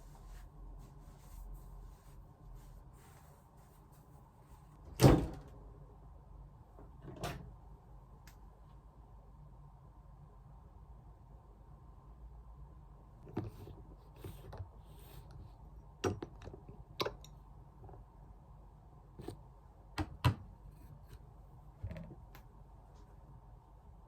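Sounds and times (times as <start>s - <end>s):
soft rustles: 0.0s - 4.8s.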